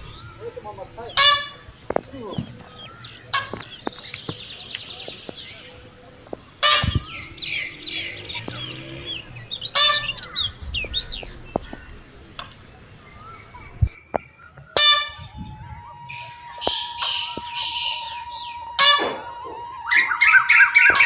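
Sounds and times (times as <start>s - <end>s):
harsh bird squawks: 0.0s - 3.9s, 6.6s - 12.5s, 16.1s - 21.0s
bird trill: 0.0s - 21.0s
birds chirping: 0.0s - 21.0s.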